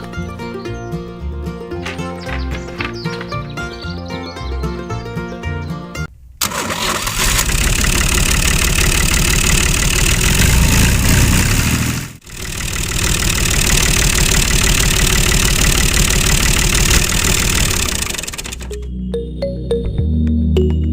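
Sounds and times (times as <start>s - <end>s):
small engine running fast: 7.1s - 18.7s.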